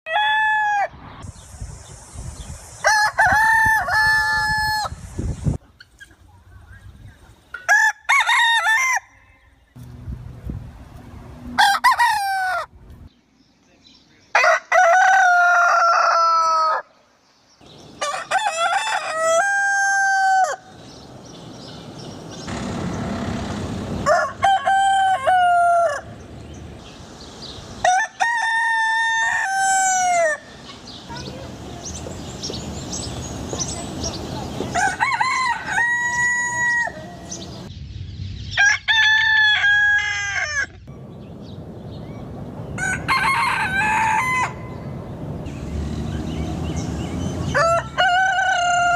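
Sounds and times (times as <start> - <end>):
roosters crowing: 0.1 - 1.0, 2.8 - 5.0, 7.6 - 9.6, 11.4 - 12.8, 14.3 - 17.0, 17.8 - 21.7, 22.3 - 26.6, 27.7 - 30.7, 34.5 - 37.7, 38.6 - 41.0, 42.6 - 48.9.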